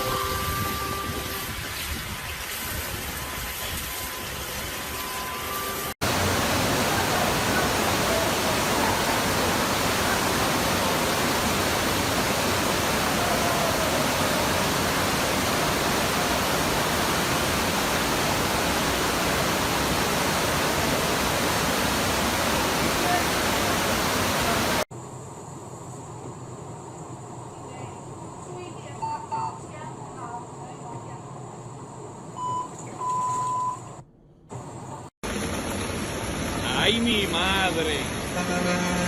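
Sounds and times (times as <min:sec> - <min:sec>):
rushing water: 0:00.0 - 0:24.9, 0:35.2 - 0:39.0.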